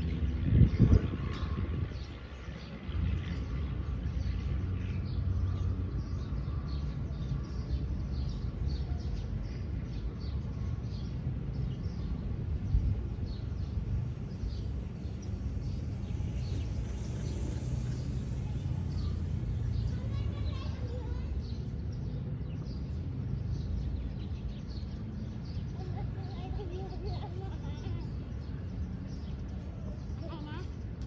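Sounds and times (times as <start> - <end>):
wind on microphone: 0.0 - 4.0
birds chirping: 0.0 - 31.0.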